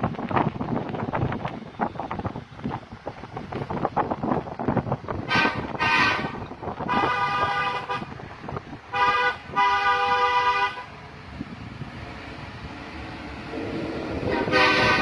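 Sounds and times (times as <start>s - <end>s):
diesel engine rumble: 0.0s - 15.0s
truck air horn blasts: 5.3s - 8.2s, 8.9s - 10.9s, 14.2s - 15.0s.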